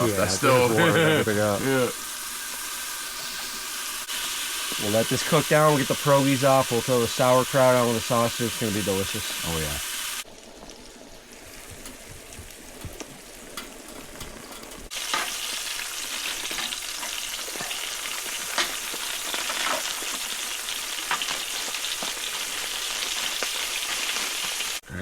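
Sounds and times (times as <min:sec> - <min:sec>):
sausage sizzling in a pan: 0:00.0 - 0:24.8
crackles and pops: 0:09.9 - 0:24.8.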